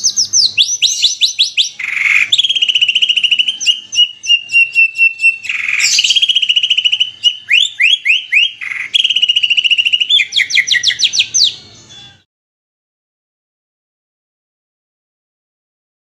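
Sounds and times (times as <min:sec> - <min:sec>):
fast bird trill: 0:00.0 - 0:12.2
harsh bird rasps: 0:00.0 - 0:12.2.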